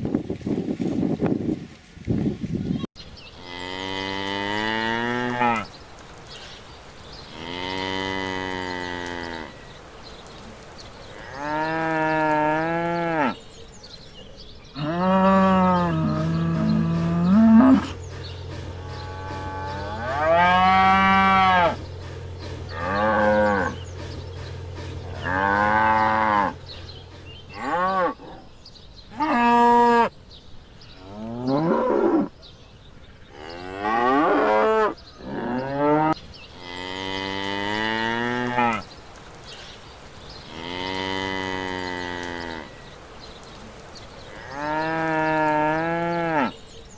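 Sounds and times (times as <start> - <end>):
cattle mooing: 3.4 - 5.7, 7.3 - 9.6, 11.2 - 13.4, 14.8 - 28.5, 33.3 - 38.8, 40.5 - 42.8, 44.3 - 46.6
steady low hum: 15.6 - 28.0.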